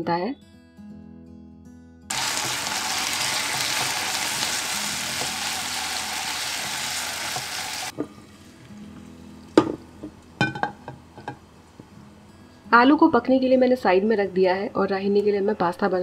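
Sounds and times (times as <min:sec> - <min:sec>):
potatoes sizzling in hot oil: 0:02.1 - 0:09.6.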